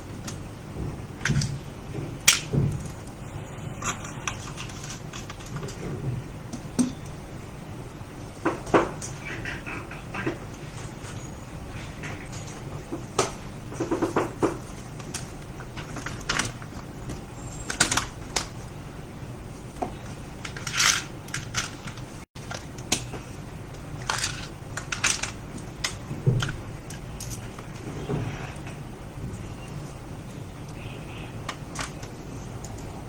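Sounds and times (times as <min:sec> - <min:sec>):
small parts and tools clicking: 0:20.4 - 0:23.1, 0:23.7 - 0:27.9.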